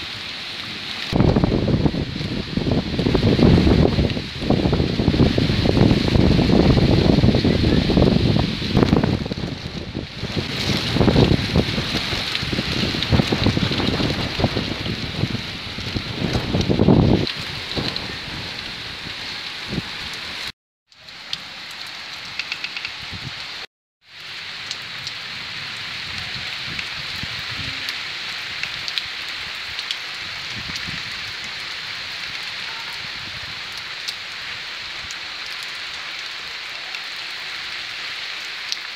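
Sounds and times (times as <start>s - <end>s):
heavy rain pattering: 0.0s - 38.9s
drip ticks: 20.9s - 23.0s.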